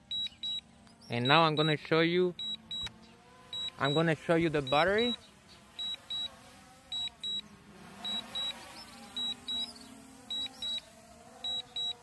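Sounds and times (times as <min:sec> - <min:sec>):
high electronic double beep: 0:02.4 - 0:02.9, 0:03.5 - 0:05.2, 0:05.8 - 0:06.3, 0:08.0 - 0:09.7, 0:10.3 - 0:12.0.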